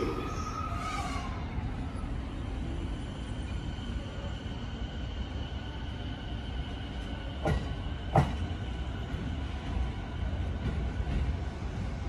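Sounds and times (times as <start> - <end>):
electric train rumbling: 0.0 - 12.0
train wheels clacking on track: 6.9 - 11.8.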